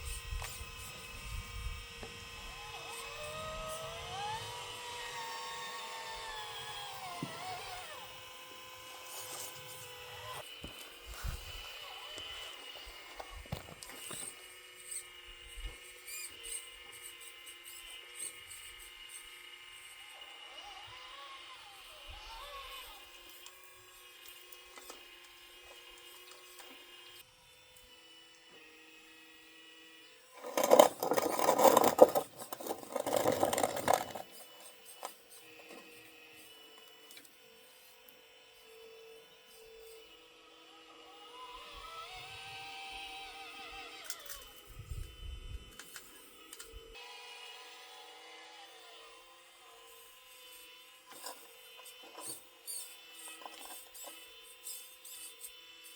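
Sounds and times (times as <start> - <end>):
electric motors whining: 0.0 - 55.9
grinding scraping machine noise: 30.3 - 36.5.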